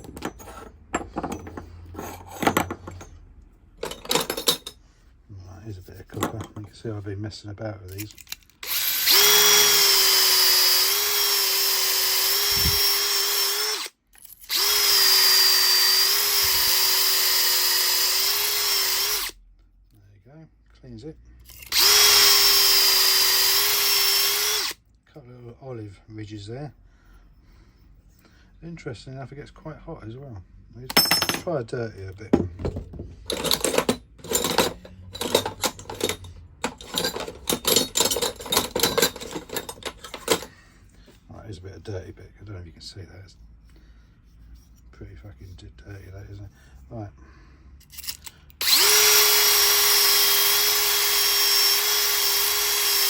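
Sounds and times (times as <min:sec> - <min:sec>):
copper pipe pieces clinking: 0:03.8 - 0:04.8, 0:32.4 - 0:40.6
drill motor whine: 0:08.6 - 0:19.4, 0:21.5 - 0:24.8, 0:48.0 - 0:53.0.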